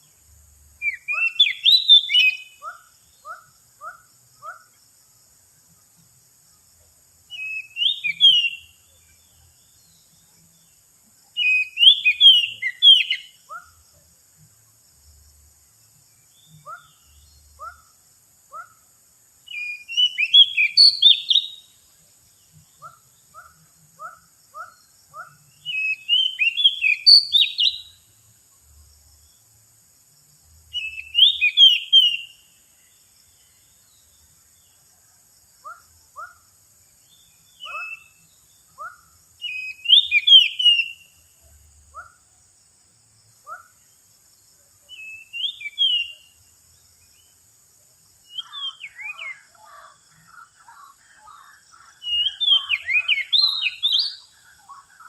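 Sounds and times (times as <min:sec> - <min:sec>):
bird singing whistled phrases: 0:00.8 - 0:03.4, 0:07.3 - 0:08.8, 0:11.4 - 0:13.7, 0:19.5 - 0:21.7, 0:24.6 - 0:28.0, 0:30.8 - 0:32.4, 0:37.5 - 0:41.1, 0:44.9 - 0:46.4, 0:48.3 - 0:49.9, 0:52.0 - 0:54.3.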